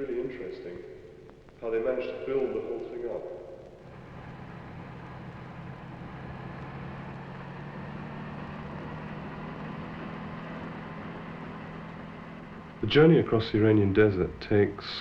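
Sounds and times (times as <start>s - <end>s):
road noise: 3.6s - 15.0s
truck engine droning: 3.6s - 15.0s.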